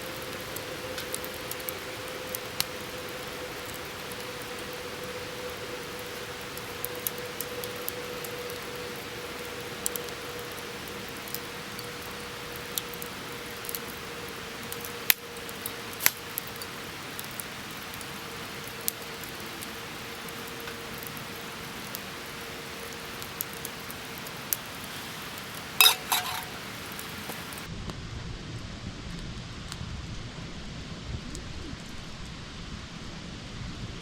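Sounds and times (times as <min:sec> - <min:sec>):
wood fire crackling and popping: 0:00.0 - 0:27.7
metallic clinks: 0:25.8 - 0:26.6.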